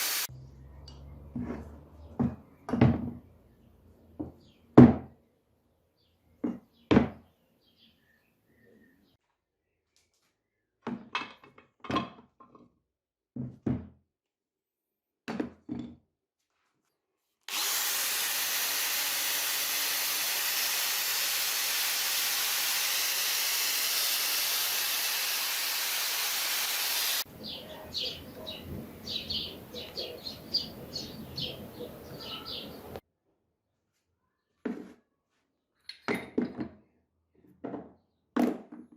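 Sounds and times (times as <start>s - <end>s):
loud steady hiss: 0.0s - 0.3s, 17.5s - 27.2s
workshop tool noise: 17.5s - 27.3s.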